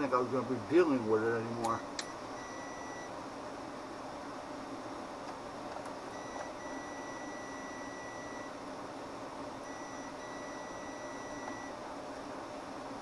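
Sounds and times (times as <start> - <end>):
multimeter beeping: 2.0 - 3.1, 6.1 - 8.5, 9.6 - 11.8.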